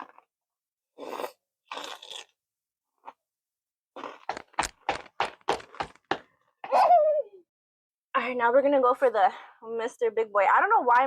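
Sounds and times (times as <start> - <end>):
crunchy snack being chewed: 1.0 - 2.4, 4.0 - 6.0.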